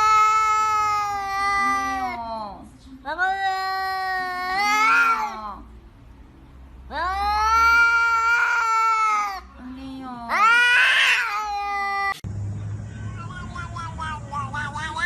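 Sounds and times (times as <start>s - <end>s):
cat yowling: 0.0s - 2.3s, 3.2s - 5.6s, 6.9s - 9.5s, 10.3s - 12.2s.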